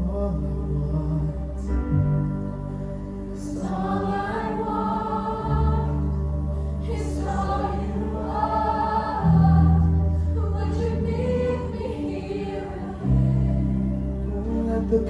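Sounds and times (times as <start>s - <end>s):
sustained bass notes: 0.0s - 15.0s
people singing: 3.1s - 15.0s.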